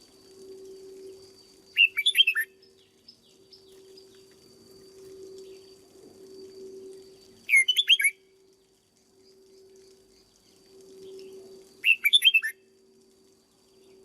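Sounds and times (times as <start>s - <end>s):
faint steady hum: 0.0s - 14.0s
bird singing quick notes: 1.8s - 2.5s, 7.5s - 8.2s, 11.8s - 12.5s.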